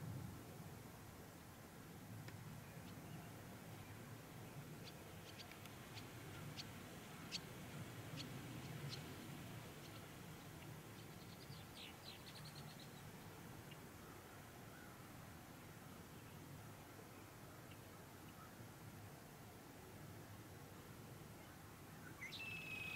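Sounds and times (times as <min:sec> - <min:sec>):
small birds chirping: 0:04.8 - 0:07.5, 0:09.8 - 0:13.1.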